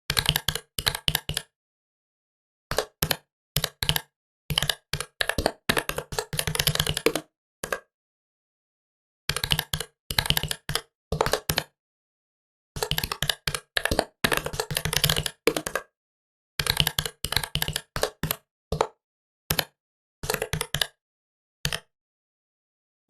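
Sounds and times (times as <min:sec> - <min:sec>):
typing on computer keyboard: 0:00.1 - 0:01.5, 0:02.7 - 0:07.8, 0:09.3 - 0:11.7, 0:12.8 - 0:15.9, 0:16.6 - 0:21.0, 0:21.7 - 0:21.9.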